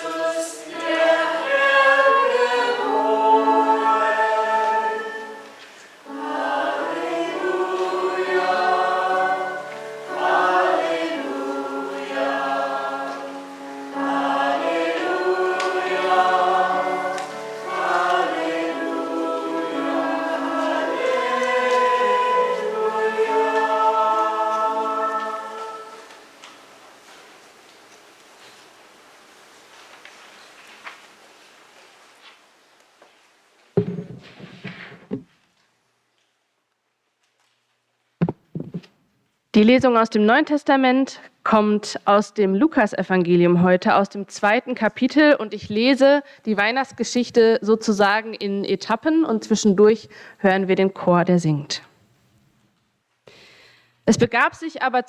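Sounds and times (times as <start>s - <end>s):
church choir singing: 0.0s - 27.0s.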